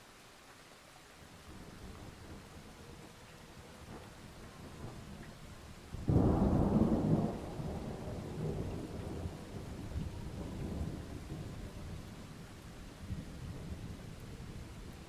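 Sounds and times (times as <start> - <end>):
steady rain: 0.0 - 15.0
thunder clap and rumble: 3.8 - 15.0.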